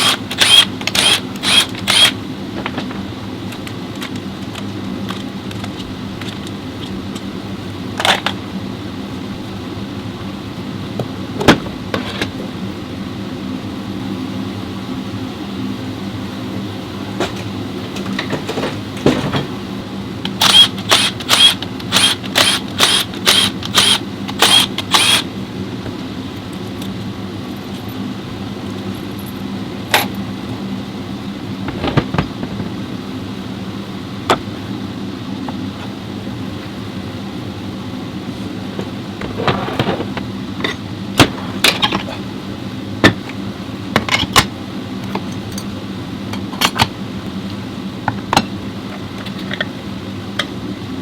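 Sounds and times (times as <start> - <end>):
air tool bursts: 0.0 - 2.2, 20.4 - 25.3
steady hum: 0.0 - 51.0.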